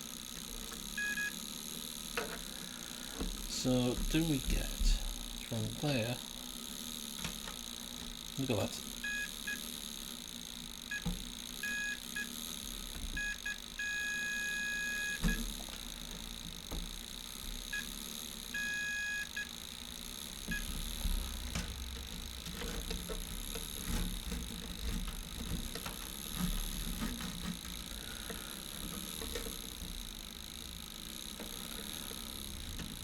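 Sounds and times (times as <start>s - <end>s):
multimeter continuity beeping: 0.8s - 1.5s, 8.4s - 9.7s, 10.8s - 12.4s, 13.1s - 15.7s, 17.5s - 21.5s.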